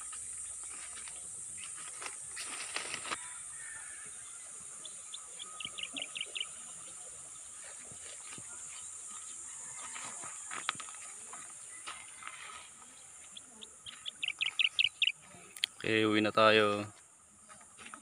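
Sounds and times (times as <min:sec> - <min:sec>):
bird calling: 0:00.0 - 0:15.8
insect drone: 0:00.0 - 0:18.0.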